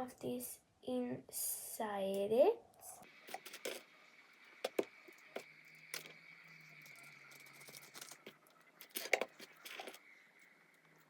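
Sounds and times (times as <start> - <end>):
small clicks and rustles: 4.6 - 11.0.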